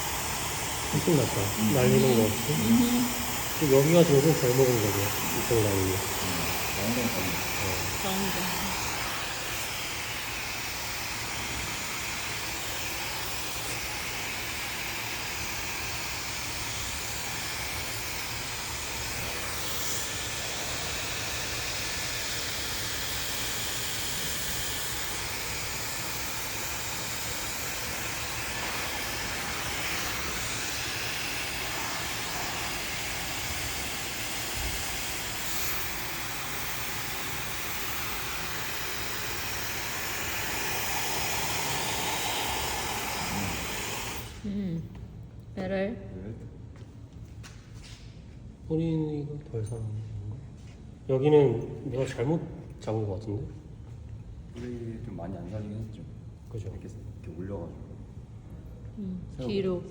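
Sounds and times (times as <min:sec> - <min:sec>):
hair dryer blowing air: 0:00.0 - 0:45.0.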